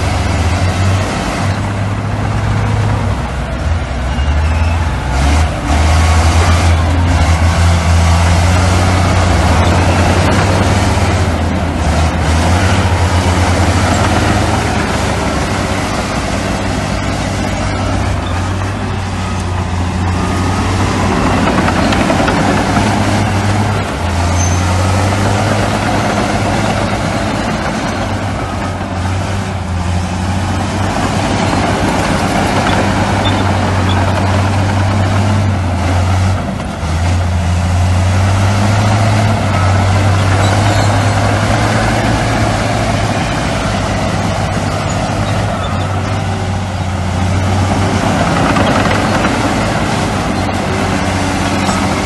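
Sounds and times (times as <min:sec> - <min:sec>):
broad rumble: 0:00.0 - 0:52.0
diesel machinery engine drone: 0:00.0 - 0:52.0.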